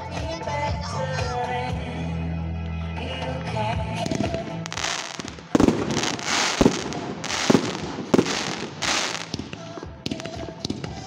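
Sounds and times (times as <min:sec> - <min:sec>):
fireworks bangs: 0:04.1 - 0:11.0
fireworks rushing hiss: 0:04.7 - 0:09.6.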